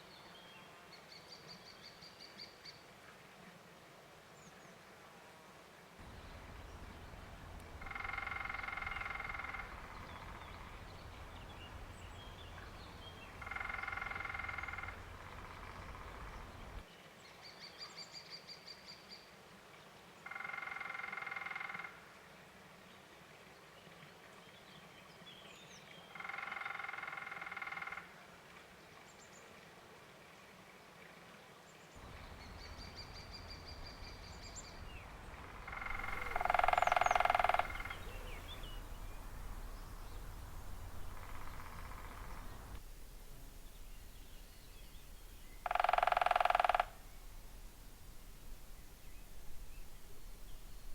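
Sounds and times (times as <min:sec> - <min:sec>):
woodpecker drumming on wood: 0:07.5 - 0:11.8, 0:12.5 - 0:16.8, 0:35.4 - 0:50.9
small bird chirps: 0:35.7 - 0:42.8.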